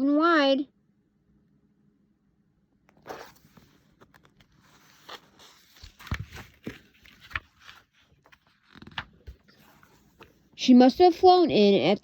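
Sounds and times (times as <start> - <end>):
paper pages rustling: 2.9 - 11.2.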